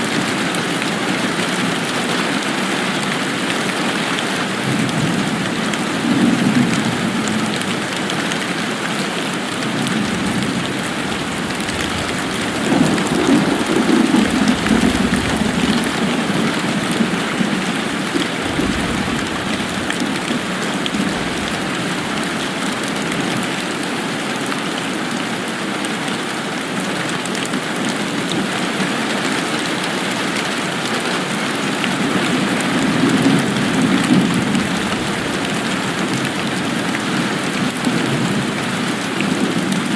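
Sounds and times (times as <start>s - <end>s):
steady rain: 0.0s - 39.9s
low rumbling: 9.8s - 23.5s.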